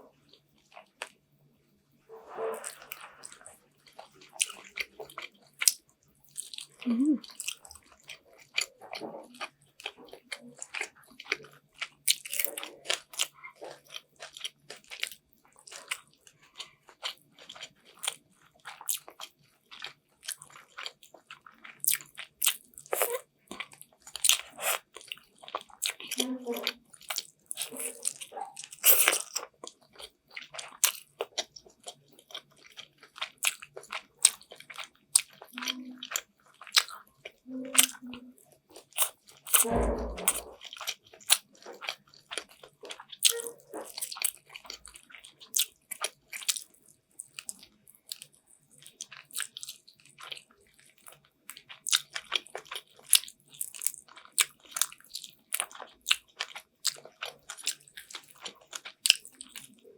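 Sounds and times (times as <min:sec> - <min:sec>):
chewing and biting food: 0:02.6 - 0:59.9
low thump: 0:39.6 - 0:40.4.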